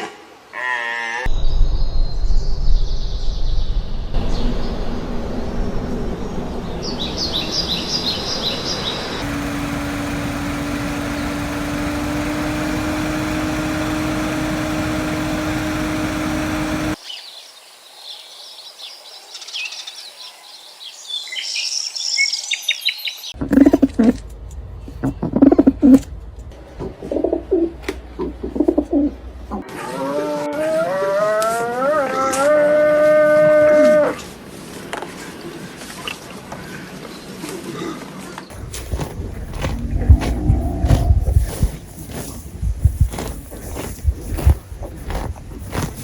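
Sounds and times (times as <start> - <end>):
outdoor background noise: 0.0 - 46.0
small birds chirping: 6.8 - 17.4, 38.4 - 46.0
steady low hum: 38.5 - 46.0.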